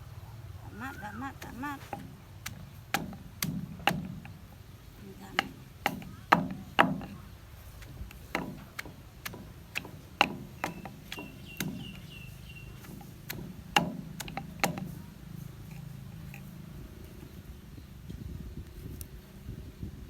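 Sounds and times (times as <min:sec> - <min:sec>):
pestle knocking in a mortar: 0:00.8 - 0:16.5.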